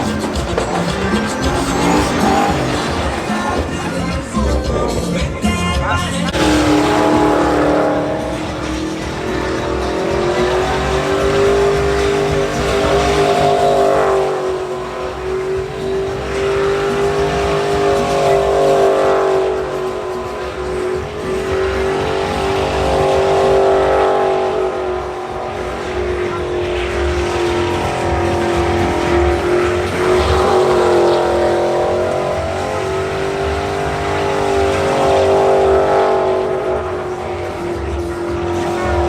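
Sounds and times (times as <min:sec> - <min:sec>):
tyres squealing: 0:00.0 - 0:23.6
truck engine at high revs: 0:00.0 - 0:39.0.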